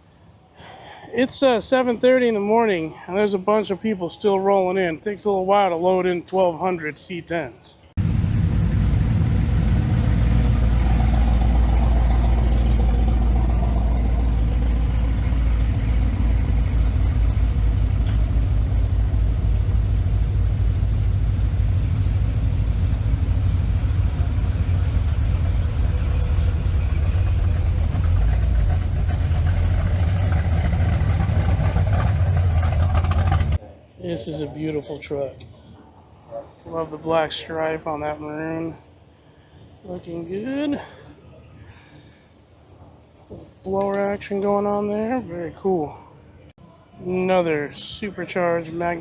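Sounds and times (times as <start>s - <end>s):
pickup truck engine rumbling: 8.0s - 33.6s.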